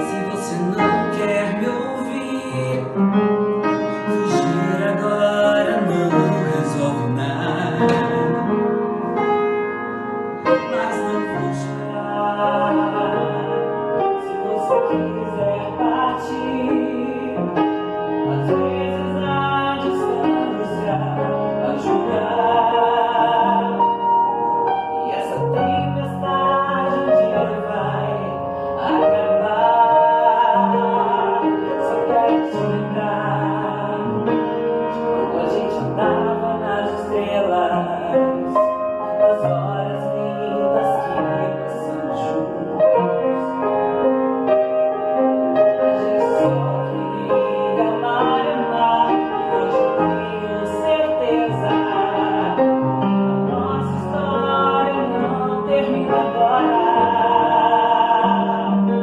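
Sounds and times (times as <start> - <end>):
person singing pop ballad: 0.0 - 3.0, 4.0 - 8.6
piano accompaniment: 0.0 - 59.0.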